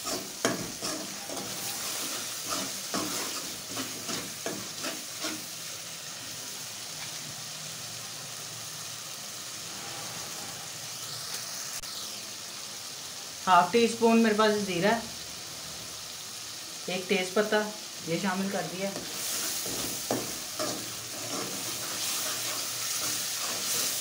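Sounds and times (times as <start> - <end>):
metal spoon scraping a pan: 0.0 - 5.6, 18.9 - 24.0
masala sizzling in a metal pan: 0.0 - 24.0.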